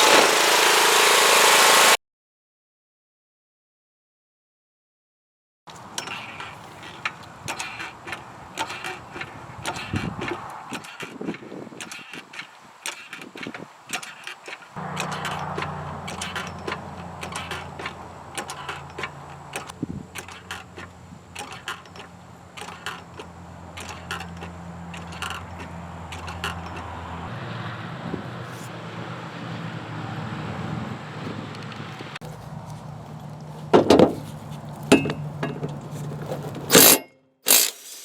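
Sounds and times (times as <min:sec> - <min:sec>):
motor humming: 0:00.0 - 0:02.0, 0:14.8 - 0:27.0
handling clicks and knocks: 0:05.7 - 0:27.2, 0:31.6 - 0:37.8.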